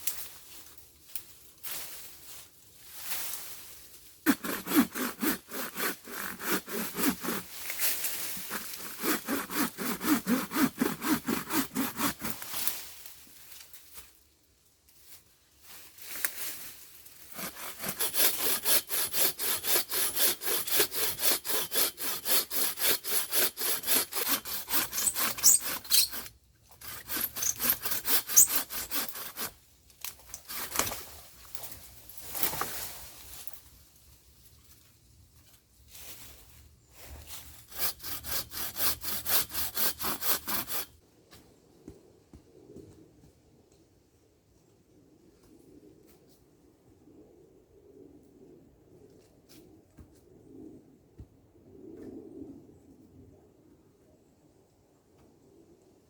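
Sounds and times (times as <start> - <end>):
hand saw cutting wood: 4.3 - 12.8, 17.3 - 31.0, 37.3 - 41.0.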